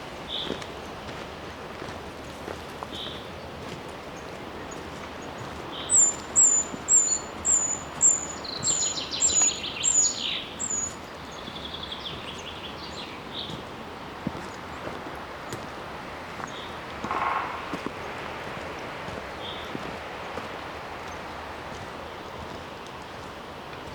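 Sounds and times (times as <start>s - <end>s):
background hiss: 2.6s - 23.9s
bird rapid low trills: 16.4s - 21.6s.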